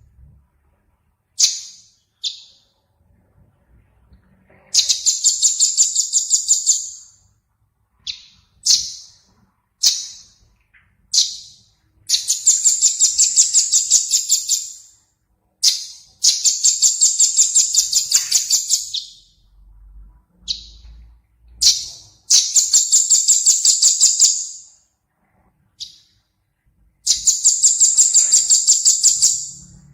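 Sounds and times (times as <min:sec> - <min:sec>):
small songbird singing trills: 0:01.3 - 0:02.8, 0:04.6 - 0:07.3, 0:07.9 - 0:15.0, 0:15.6 - 0:19.5, 0:20.4 - 0:24.8, 0:25.7 - 0:26.3, 0:27.0 - 0:29.9.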